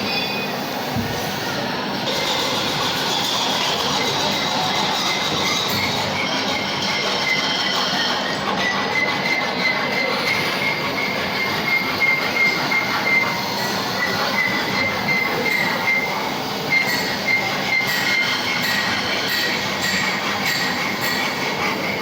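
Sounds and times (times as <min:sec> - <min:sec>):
file rasping on metal: 0:02.1 - 0:22.0
high-pitched metal squeal: 0:02.1 - 0:22.0.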